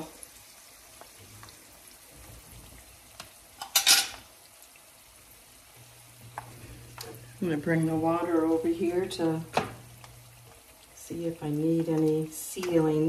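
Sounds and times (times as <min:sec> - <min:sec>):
wontons sizzling in oil: 0:00.0 - 0:13.0
metal fork clattering on plate: 0:03.6 - 0:04.2.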